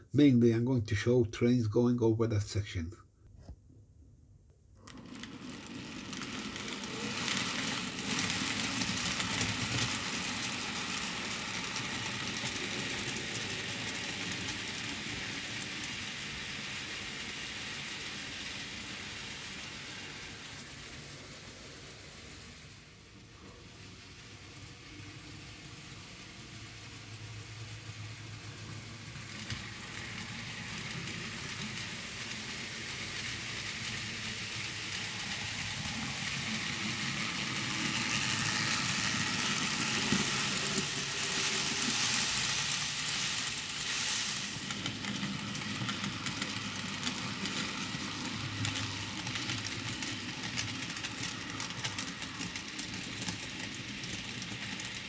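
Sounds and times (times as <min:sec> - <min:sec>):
model train rolling on track: 0:04.8 - 0:55.0.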